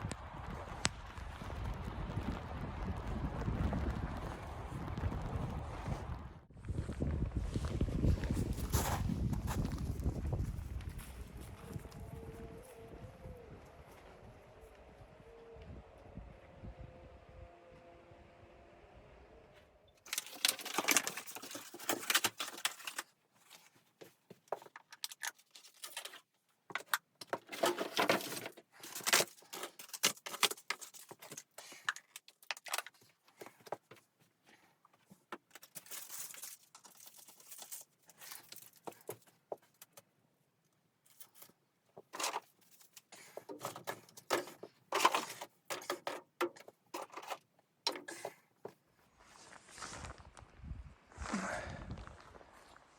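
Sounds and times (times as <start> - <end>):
rustling and crinkling handling noise: 7.6 - 12.9, 20.0 - 50.6.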